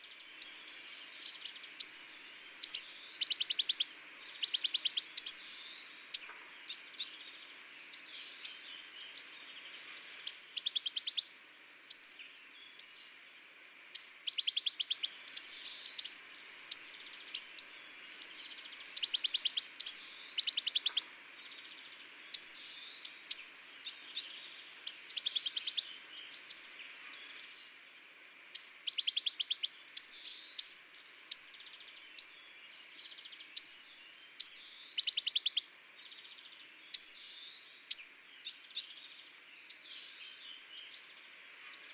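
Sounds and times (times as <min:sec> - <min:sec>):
small songbirds chirping: 0:00.0 - 0:41.9
fast dry bird trill: 0:00.2 - 0:05.4, 0:14.0 - 0:21.2, 0:33.6 - 0:35.6.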